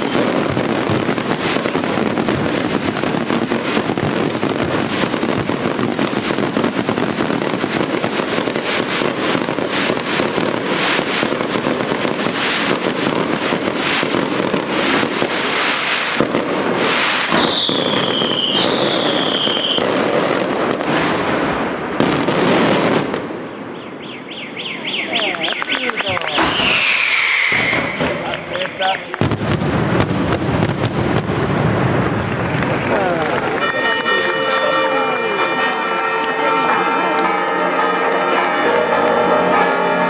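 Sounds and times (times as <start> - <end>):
falling firework whistles: 0.0 - 0.6, 16.8 - 20.0, 23.8 - 28.4
fireworks bangs and crackling: 0.0 - 23.8, 24.4 - 40.0.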